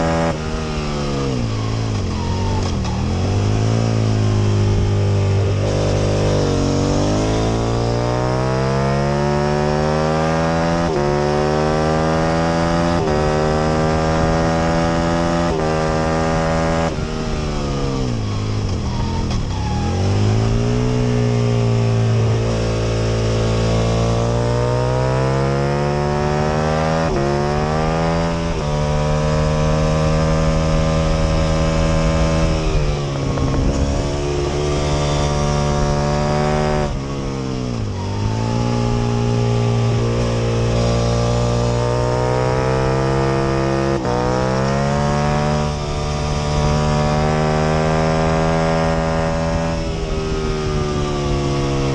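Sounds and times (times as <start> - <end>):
motorcycle engine at racing revs: 0.0 - 51.9.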